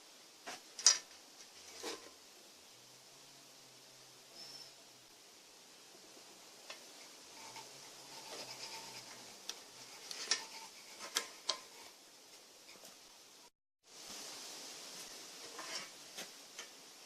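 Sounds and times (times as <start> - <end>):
rubbing sounds: 6.9 - 13.1, 14.8 - 16.4.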